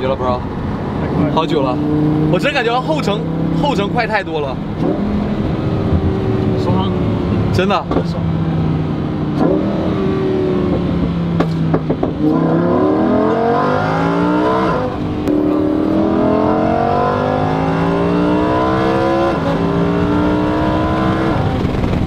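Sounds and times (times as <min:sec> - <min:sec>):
car engine accelerating hard: 0:00.0 - 0:22.0
exhaust cracks: 0:21.3 - 0:22.0.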